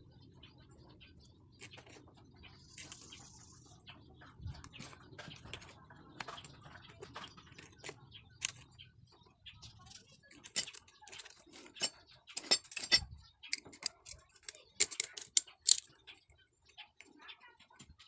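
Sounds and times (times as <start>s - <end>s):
metal parts clicking and tapping: 1.6s - 2.0s, 2.8s - 3.1s, 4.6s - 8.7s, 9.9s - 17.1s.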